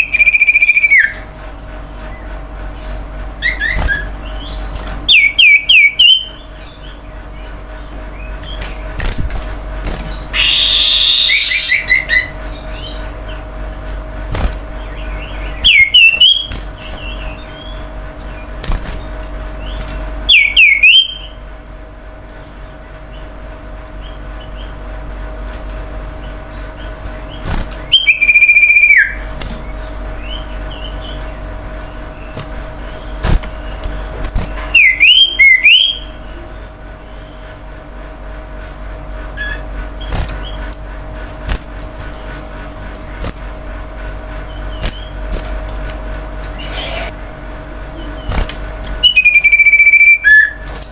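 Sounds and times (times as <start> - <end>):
bird singing whistled phrases: 0.0 - 1.2, 10.4 - 12.3, 15.6 - 16.5, 20.3 - 21.4, 27.9 - 29.2, 34.8 - 36.1, 49.0 - 50.6.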